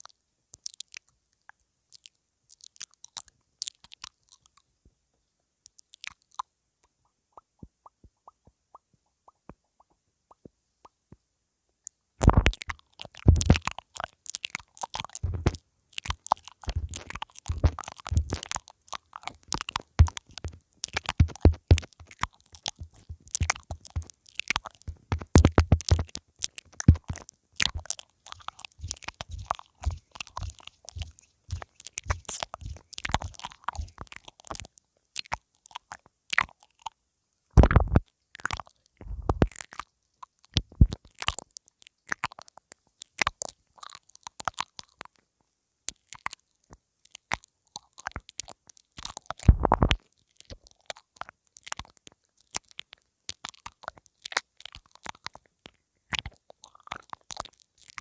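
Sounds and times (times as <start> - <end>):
mouth nibbling microphone crackles: 12.2 - 36.9, 37.6 - 45.1, 47.1 - 58.0
muffled thumps against microphone: 15.2 - 15.6, 16.7 - 18.4, 37.6 - 38.0, 39.0 - 39.5, 49.5 - 50.0.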